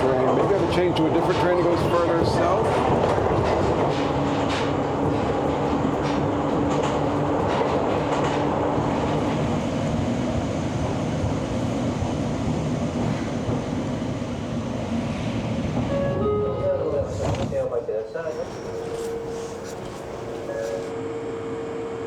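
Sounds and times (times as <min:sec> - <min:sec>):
train rumble: 0:00.0 - 0:22.0
wheels clicking over rail joints: 0:00.2 - 0:09.4.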